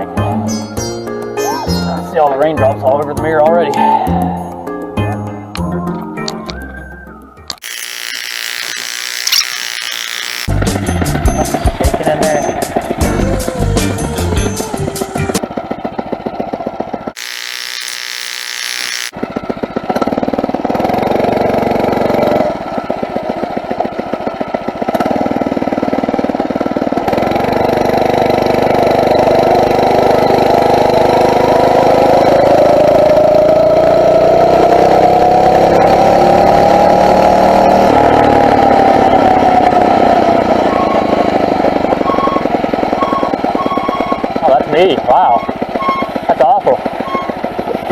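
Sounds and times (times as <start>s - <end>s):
motorized bicycle engine: 7.6s - 10.5s, 17.2s - 19.1s.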